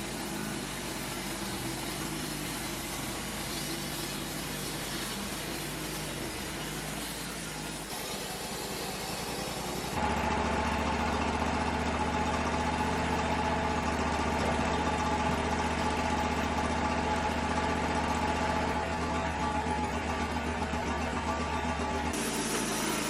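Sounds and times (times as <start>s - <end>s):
sawmill engine running: 0.0s - 23.0s.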